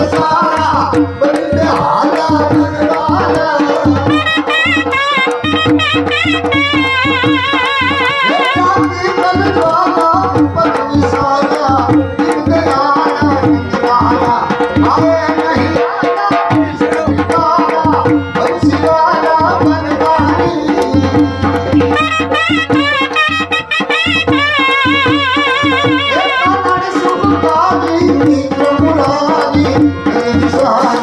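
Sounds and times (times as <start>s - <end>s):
steady drum beat: 0.0s - 31.0s
reed pipe playing fast melody: 4.0s - 9.1s, 21.2s - 27.8s.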